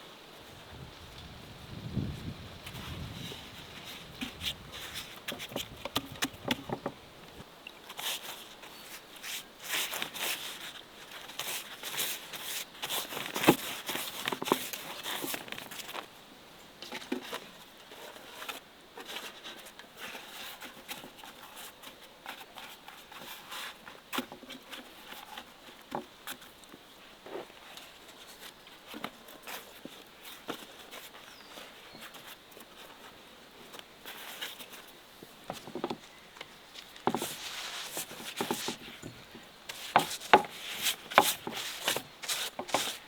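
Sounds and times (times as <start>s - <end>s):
rustling and crinkling: 0.3s - 16.2s, 16.8s - 43.0s.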